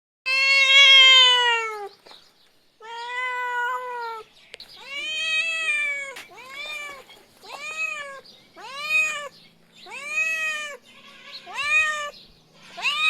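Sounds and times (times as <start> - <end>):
kitten meowing: 0.3 - 1.9, 4.8 - 9.3, 9.9 - 10.8, 11.4 - 13.0.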